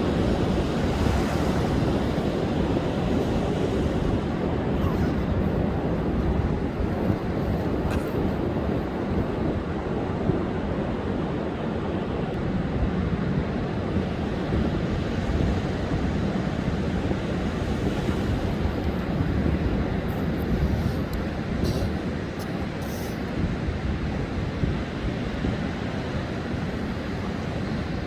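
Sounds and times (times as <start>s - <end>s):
wind on microphone: 0.0s - 11.5s, 12.5s - 28.0s
waves breaking on beach: 0.0s - 28.0s.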